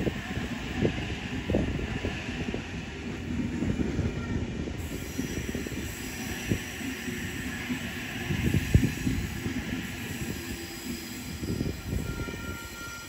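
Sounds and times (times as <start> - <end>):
train rumbling past: 0.0 - 13.0
high wheel squeal: 4.8 - 13.0.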